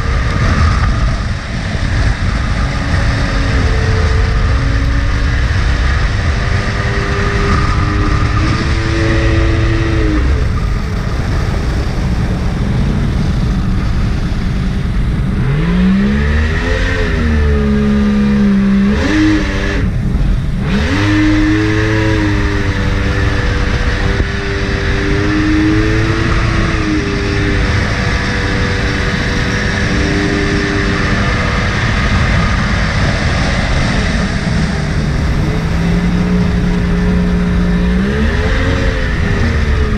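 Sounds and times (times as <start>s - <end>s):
jet boat engine revving: 0.0s - 39.9s
rushing water noise: 0.0s - 39.9s.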